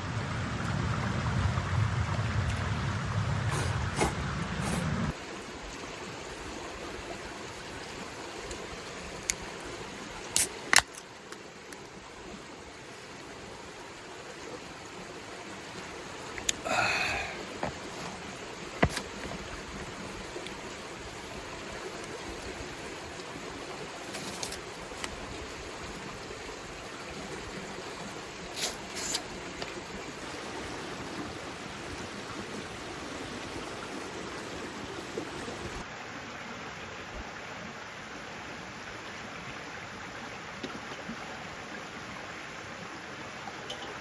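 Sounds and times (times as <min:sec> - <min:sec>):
low rumble: 0:00.0 - 0:05.1
rain hiss: 0:00.0 - 0:39.3.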